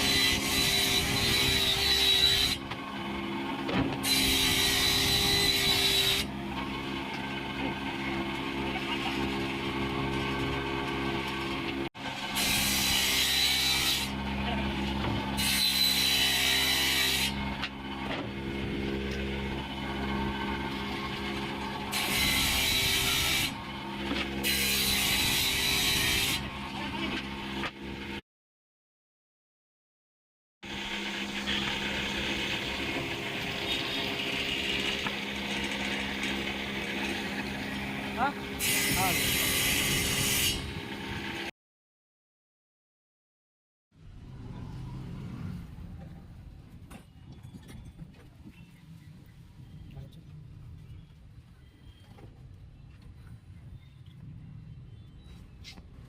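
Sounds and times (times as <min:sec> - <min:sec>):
saw blade rasping through wood: 0:00.0 - 0:02.7, 0:04.0 - 0:06.3, 0:12.1 - 0:17.8, 0:21.8 - 0:26.5, 0:30.8 - 0:41.5
electric jigsaw cutting plywood: 0:00.0 - 0:28.2, 0:30.7 - 0:41.5.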